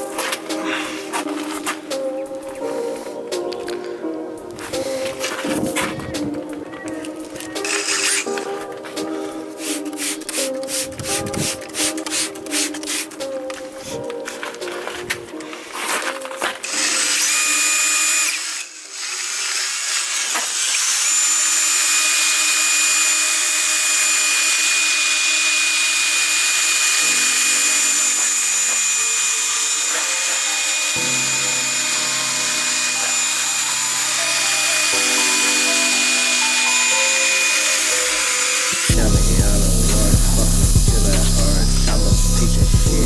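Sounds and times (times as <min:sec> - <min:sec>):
background music: 0:00.0 - 0:18.8, 0:21.0 - 0:43.0
power tool whining: 0:04.8 - 0:09.3, 0:16.6 - 0:43.0.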